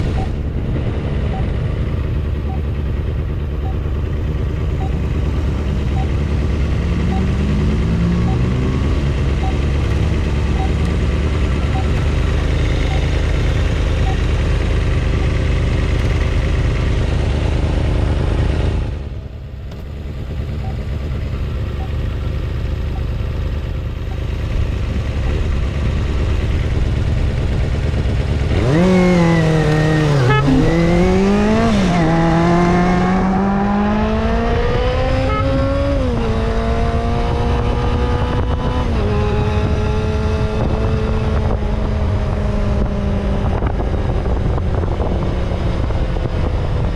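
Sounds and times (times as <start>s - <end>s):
vehicle engine and road drone: 0.0s - 46.9s
engine revving through gear changes: 4.7s - 19.0s, 24.1s - 46.9s.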